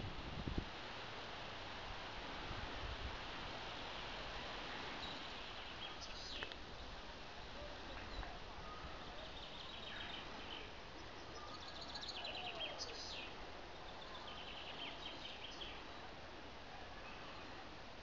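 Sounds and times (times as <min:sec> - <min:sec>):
faint background noise: 0:00.0 - 0:18.0
songbirds trilling: 0:04.8 - 0:07.0, 0:08.0 - 0:16.1.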